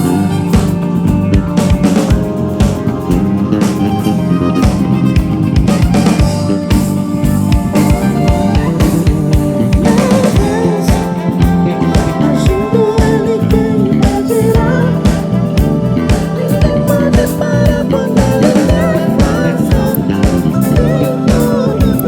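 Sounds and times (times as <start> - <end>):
live band music: 0.0 - 22.0
wavering melody line: 0.0 - 22.0.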